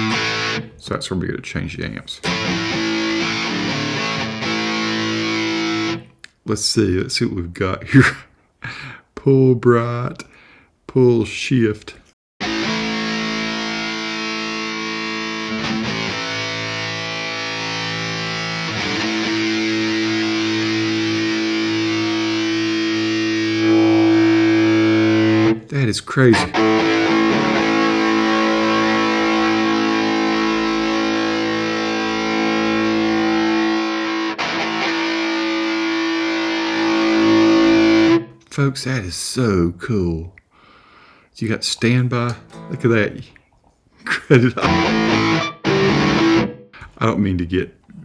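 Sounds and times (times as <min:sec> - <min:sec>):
distorted electric guitar chords: 0:00.0 - 0:00.8, 0:02.2 - 0:06.1, 0:12.4 - 0:25.6, 0:26.3 - 0:38.3, 0:42.3 - 0:43.0, 0:44.6 - 0:46.8.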